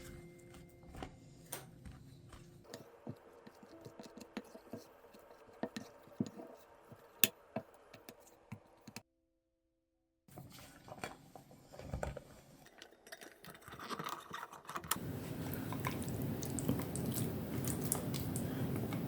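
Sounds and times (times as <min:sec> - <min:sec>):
kitchen utensils and bowls clicking: 0:12.7 - 0:19.0.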